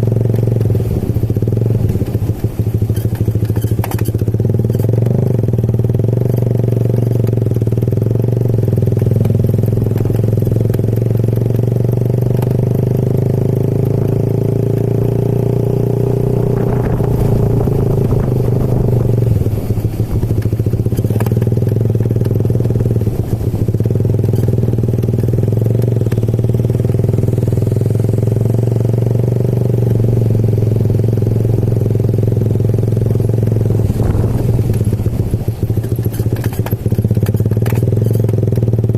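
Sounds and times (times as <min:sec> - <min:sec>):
motorcycle engine running: 0:00.0 - 0:38.9
short rattles and knocks: 0:33.3 - 0:38.7.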